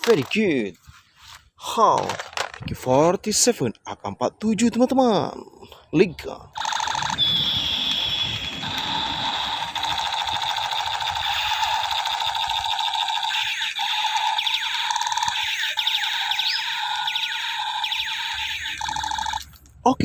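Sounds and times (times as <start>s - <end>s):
toy gun electronic rattle: 2.1s - 2.6s, 6.6s - 19.6s.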